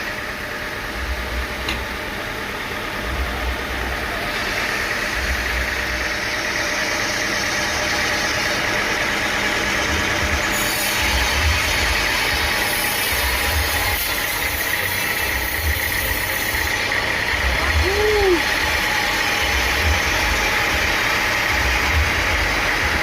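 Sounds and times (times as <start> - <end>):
high hissing whine: 0.0 - 23.0
sawmill machinery drone: 0.0 - 23.0.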